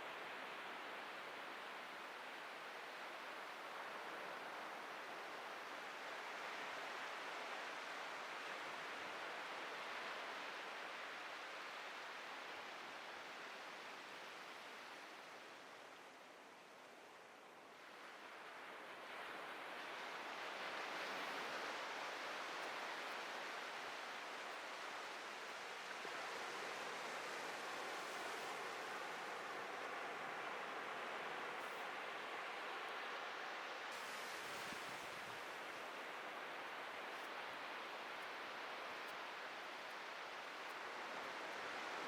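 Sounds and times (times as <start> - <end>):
ocean surf washing on beach: 17.8 - 42.0.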